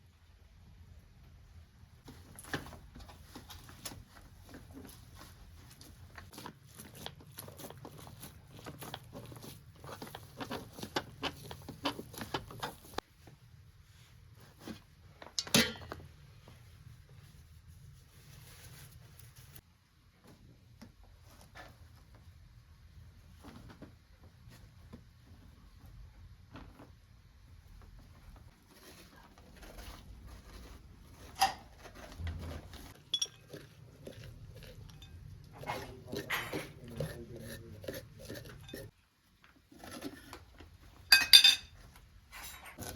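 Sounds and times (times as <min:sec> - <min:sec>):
soft scraping and rustling: 0:16.2 - 0:22.4, 0:23.1 - 0:33.9
hard objects knocking and clinking: 0:32.9 - 0:33.7.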